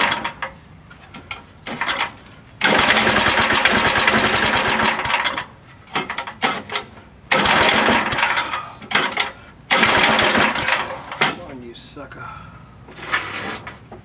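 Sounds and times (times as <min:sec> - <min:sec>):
small engine cranking: 0:01.8 - 0:05.5, 0:07.3 - 0:11.2.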